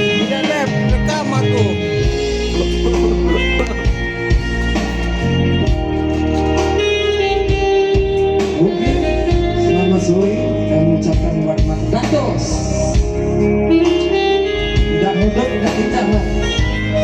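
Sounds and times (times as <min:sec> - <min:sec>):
bass line: 0:00.0 - 0:13.4
guitar: 0:00.0 - 0:17.0.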